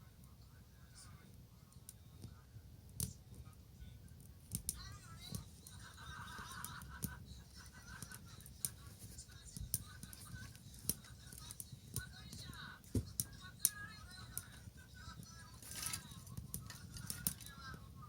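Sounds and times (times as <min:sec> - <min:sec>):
bonfire crackling: 0:00.1 - 0:18.0.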